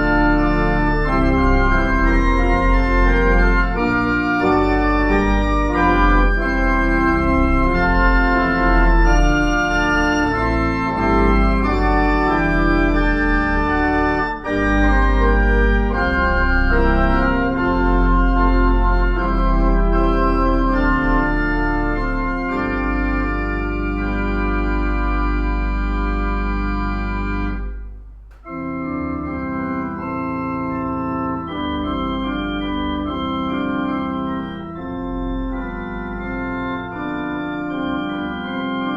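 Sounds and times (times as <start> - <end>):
church organ playing chords: 0.0 - 38.9.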